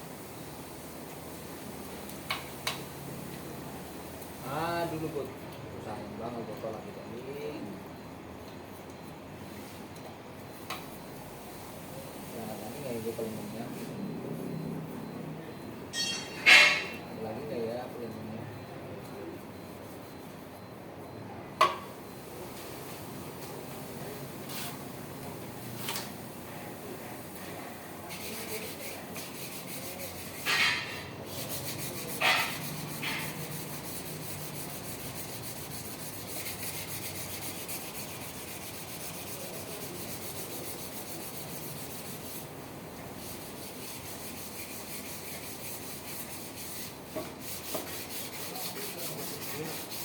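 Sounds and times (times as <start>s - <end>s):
scrubbing metal parts: 15.9s - 17.1s, 28.1s - 39.2s.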